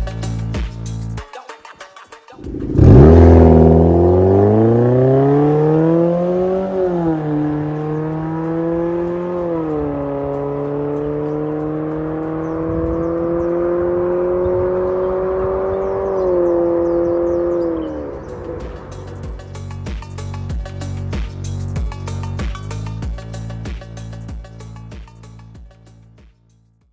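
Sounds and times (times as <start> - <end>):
car exhaust under throttle: 2.4 - 24.7.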